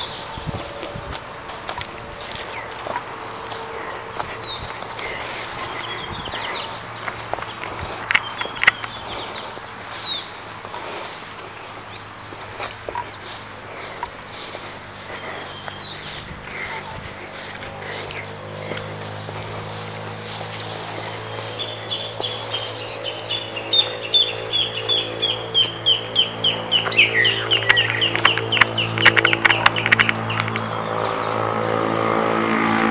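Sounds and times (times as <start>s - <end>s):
high insect drone: 0.0s - 32.9s
low steady hum: 0.0s - 32.9s.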